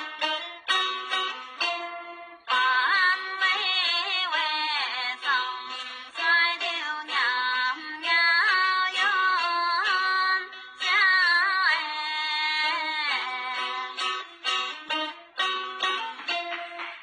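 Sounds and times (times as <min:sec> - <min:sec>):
high voice singing folk melody: 0:00.0 - 0:16.6.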